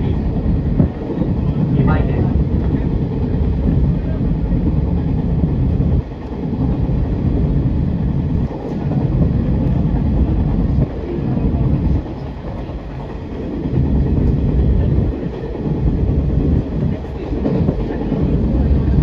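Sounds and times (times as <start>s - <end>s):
train wheels rumbling: 0.0s - 19.0s.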